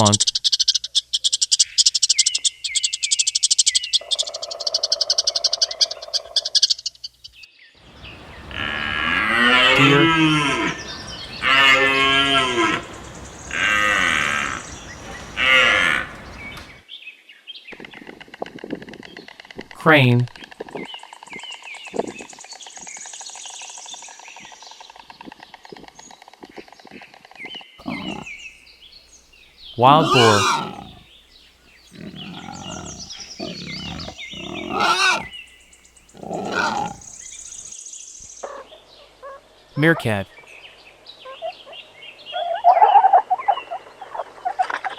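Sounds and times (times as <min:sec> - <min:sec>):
deer bleating calls: 0:07.9 - 0:16.8, 0:27.8 - 0:28.3, 0:29.7 - 0:31.1, 0:31.9 - 0:35.4, 0:36.1 - 0:37.2
high chirping: 0:07.9 - 0:16.8, 0:27.8 - 0:28.4, 0:31.8 - 0:37.7
wild boar grunting and growling: 0:07.9 - 0:16.8, 0:27.8 - 0:28.4, 0:29.7 - 0:35.4, 0:36.0 - 0:37.7.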